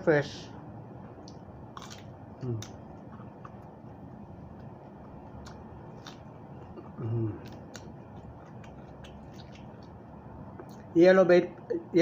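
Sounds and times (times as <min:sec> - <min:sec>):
mouth clicks chewing vegetables: 0:01.2 - 0:10.0.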